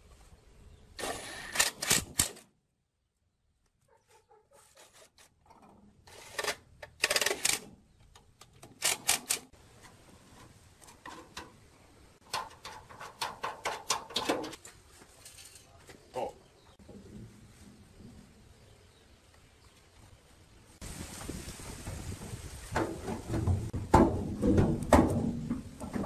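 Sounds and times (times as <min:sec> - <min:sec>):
workshop clicking and rattling: 0:12.2 - 0:14.6, 0:22.7 - 0:26.0.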